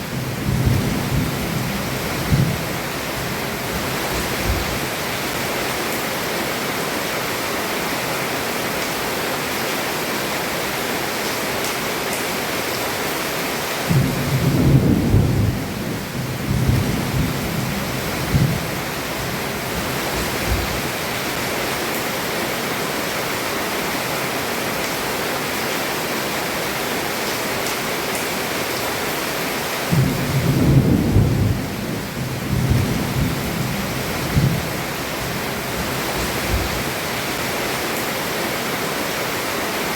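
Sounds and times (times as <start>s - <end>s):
heavy rain on a roof: 0.0s - 39.9s
thunder rolling: 13.9s - 19.3s, 29.9s - 36.8s.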